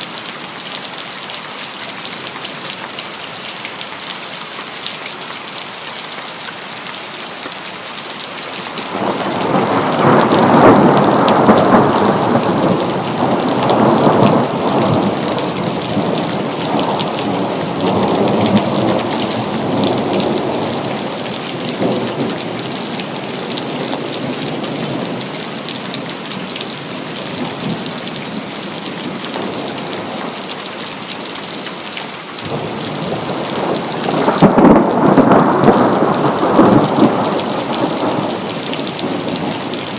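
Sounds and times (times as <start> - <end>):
rain falling: 0.0 - 39.9
thunder rolling: 8.9 - 20.8, 32.5 - 39.8.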